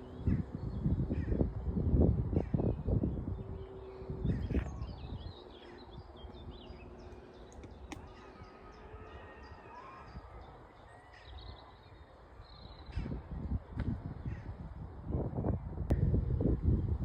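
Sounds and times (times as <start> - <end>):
steady low rumble: 0.0 - 9.2, 11.8 - 17.0
small birds chirping: 0.0 - 13.5.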